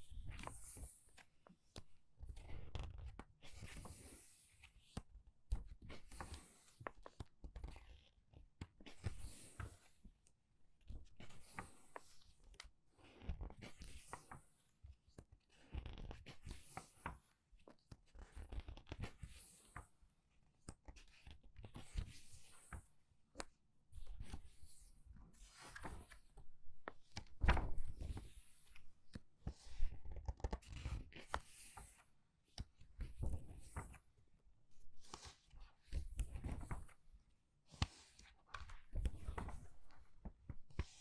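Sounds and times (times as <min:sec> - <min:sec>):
book pages turning: 0:25.5 - 0:28.8, 0:29.6 - 0:32.0, 0:35.0 - 0:37.0, 0:37.7 - 0:41.0.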